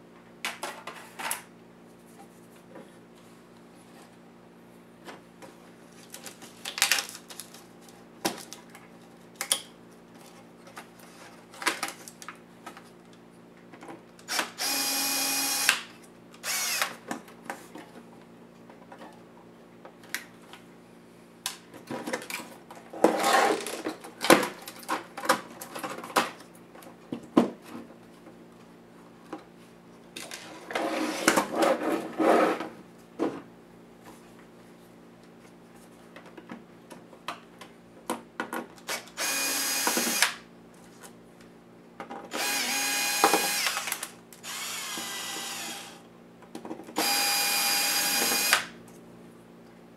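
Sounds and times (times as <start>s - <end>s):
power screwdriver whirring: 14.3s - 15.8s, 16.4s - 16.9s, 38.9s - 40.4s, 42.3s - 46.0s, 47.0s - 48.7s.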